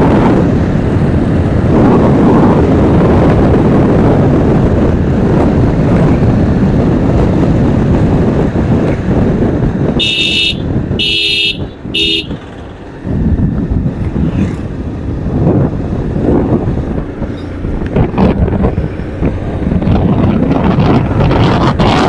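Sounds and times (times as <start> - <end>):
wind and road noise: 0.0 - 22.0
vehicle horn honking: 10.0 - 12.6.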